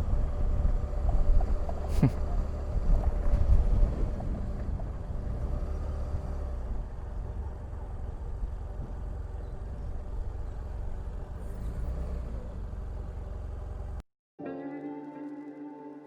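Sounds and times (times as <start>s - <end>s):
motorcycle engine running: 0.0s - 5.5s.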